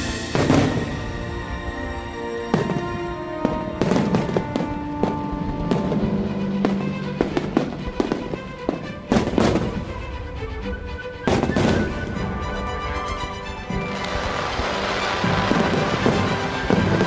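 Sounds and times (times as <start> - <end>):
fireworks cracking and popping: 0.0 - 1.2, 2.5 - 9.9, 13.7 - 17.0
music over loudspeakers: 11.3 - 17.0.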